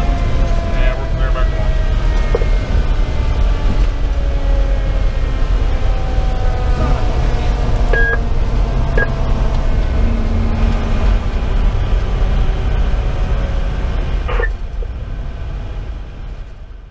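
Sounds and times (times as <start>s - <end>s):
diesel engine drone: 0.0s - 16.9s
short electronic tones: 7.9s - 8.2s, 14.3s - 14.6s.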